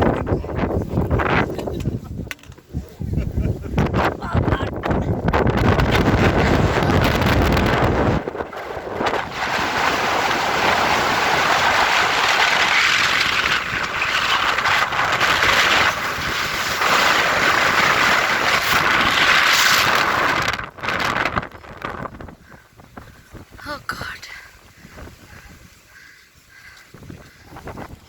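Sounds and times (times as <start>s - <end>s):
strong wind blowing in gusts: 0.0s - 28.0s.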